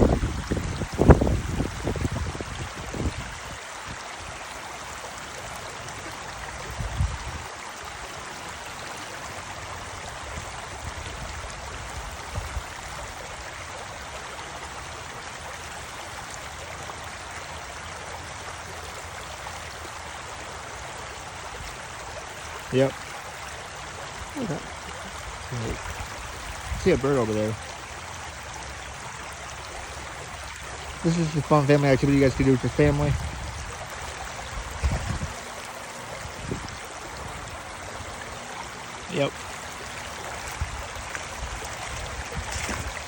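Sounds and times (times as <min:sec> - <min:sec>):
wind buffeting microphone: 0:00.0 - 0:04.0, 0:06.6 - 0:07.5, 0:32.0 - 0:35.6, 0:36.2 - 0:38.2, 0:40.4 - 0:43.0
creek flowing: 0:00.0 - 0:43.0.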